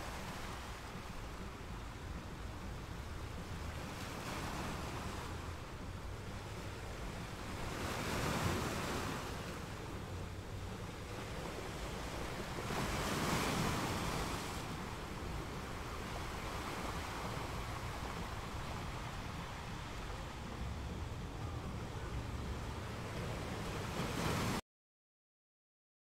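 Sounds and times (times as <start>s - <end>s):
waves breaking on beach: 0.0s - 24.6s.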